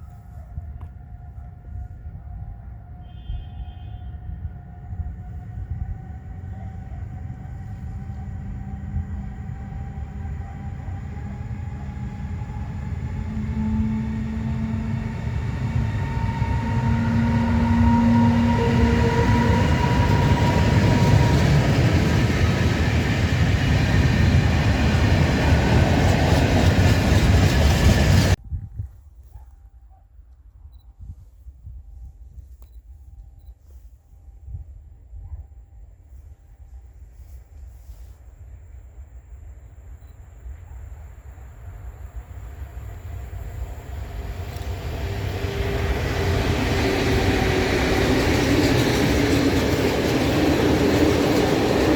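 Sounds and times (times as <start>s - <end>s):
train passing: 4.1s - 28.4s, 39.8s - 51.9s.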